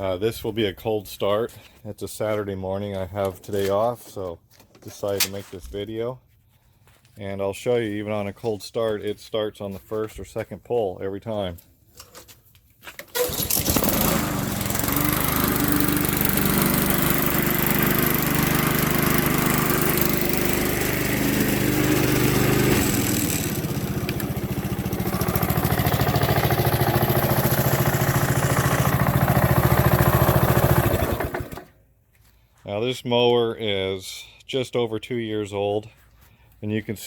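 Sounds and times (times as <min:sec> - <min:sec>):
starter cord pull: 0:13.0 - 0:14.3, 0:22.8 - 0:24.5
lawn mower engine running: 0:13.1 - 0:31.8.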